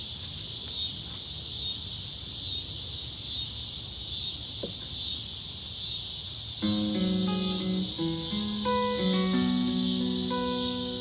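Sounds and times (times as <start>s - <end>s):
cicadas singing: 0.0s - 11.0s.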